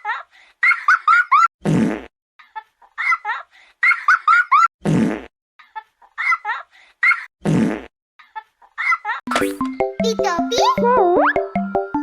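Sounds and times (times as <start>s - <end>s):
cartoon fart sound effect: 1.6s - 2.1s, 4.8s - 5.3s, 7.4s - 7.9s.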